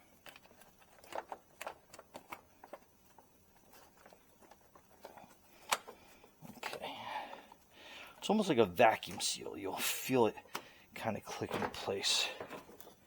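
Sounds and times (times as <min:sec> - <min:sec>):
plastic parts clicking: 0:00.1 - 0:03.2, 0:03.8 - 0:06.8.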